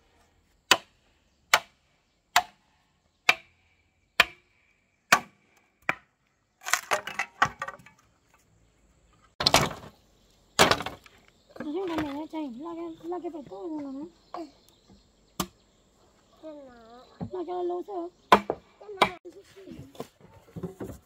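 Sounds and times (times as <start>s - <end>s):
wood clattering: 6.6s - 8.5s, 9.1s - 10.0s, 10.6s - 12.4s, 19.7s - 21.0s.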